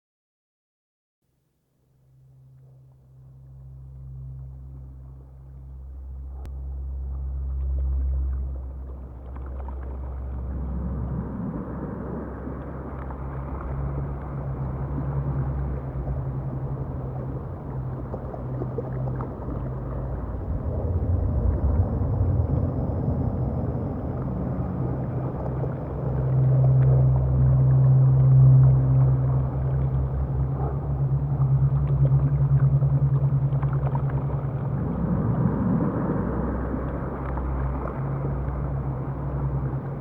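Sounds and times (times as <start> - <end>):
steady low hum: 1.5 - 40.0
rumbling rush of sea: 2.6 - 40.0.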